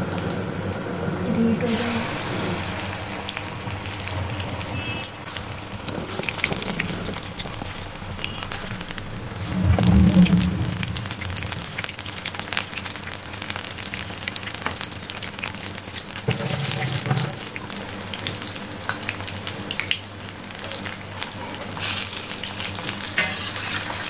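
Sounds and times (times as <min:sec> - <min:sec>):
deep-frying sizzle with pops: 0:00.0 - 0:24.0
brief low hum: 0:07.6 - 0:11.9.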